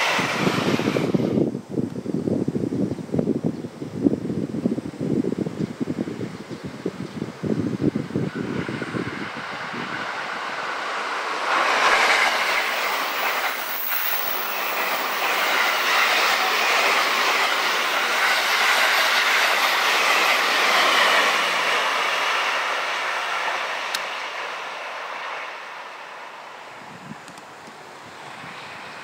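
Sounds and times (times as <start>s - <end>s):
train passing at speed: 0.0s - 1.6s, 5.1s - 29.0s
wheels clickety-clack on rails: 7.8s - 25.5s.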